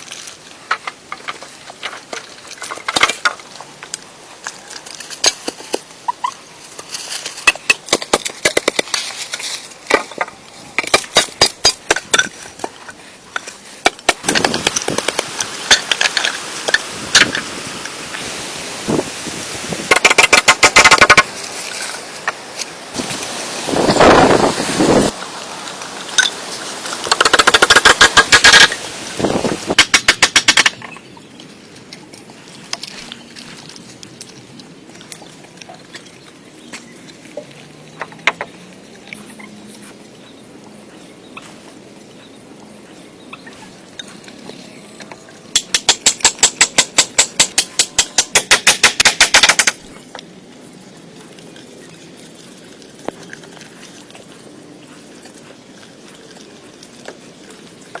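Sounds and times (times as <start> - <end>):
rapid sharp knocks: 45.6 - 49.8.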